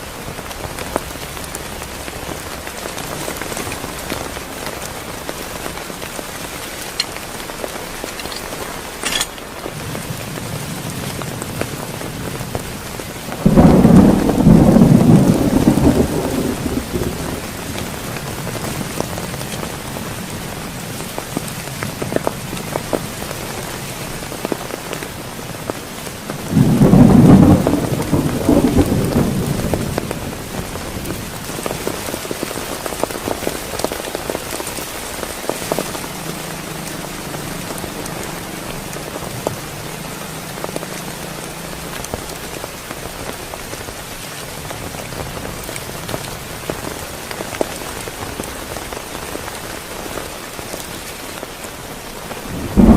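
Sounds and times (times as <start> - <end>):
raindrops ticking: 0.0 - 51.6
heavy rain: 0.0 - 52.9
thunder clap: 13.4 - 18.0, 26.4 - 31.8, 52.5 - 52.9.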